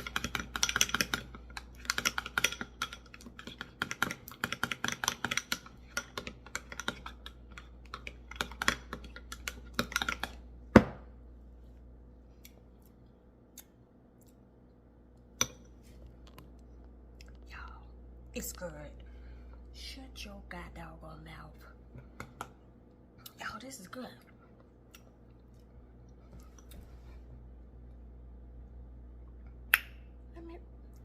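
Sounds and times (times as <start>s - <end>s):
spoon stirring sauce in bowl: 0.0s - 10.4s.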